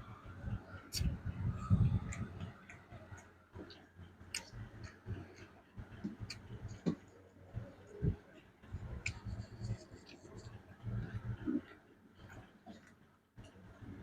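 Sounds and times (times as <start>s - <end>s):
chewing and mouth smacks: 2.0s - 7.0s.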